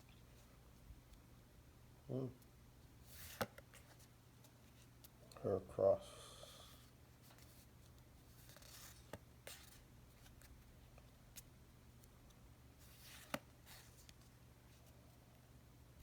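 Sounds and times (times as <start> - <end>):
soft rustling of packaging: 6.7 - 16.0.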